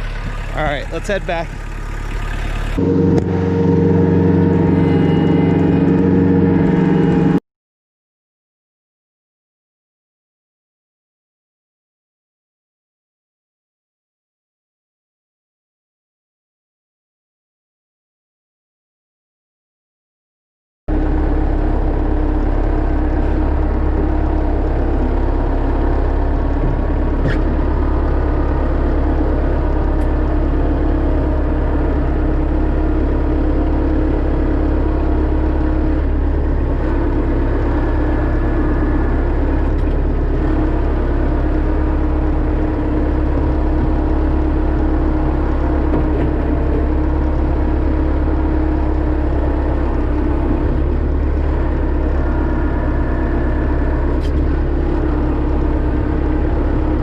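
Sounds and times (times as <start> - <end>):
tractor diesel engine running: 0.0 - 7.4, 20.9 - 57.0.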